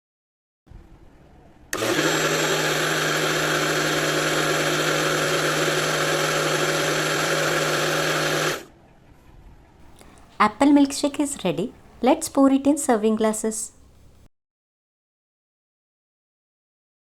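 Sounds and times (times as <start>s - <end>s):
electric blender running: 1.8s - 8.7s.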